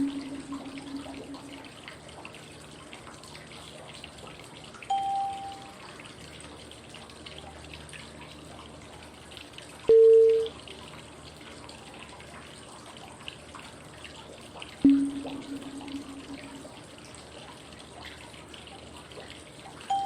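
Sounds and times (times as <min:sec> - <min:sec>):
short mid-pitched electronic tone: 0:00.0 - 0:01.6, 0:14.8 - 0:16.8
lower longer electronic tone: 0:00.0 - 0:01.8, 0:14.8 - 0:16.8
flowing water white noise: 0:00.0 - 0:02.6, 0:14.8 - 0:16.8.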